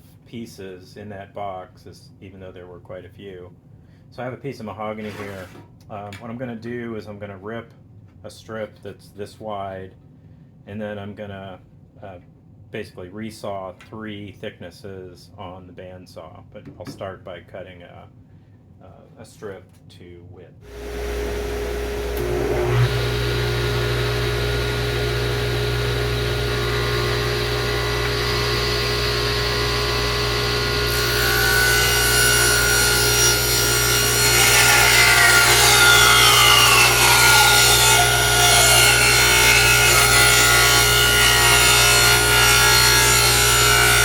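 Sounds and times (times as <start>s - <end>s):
power saw ripping wood: 5.0s - 5.6s, 20.7s - 44.0s.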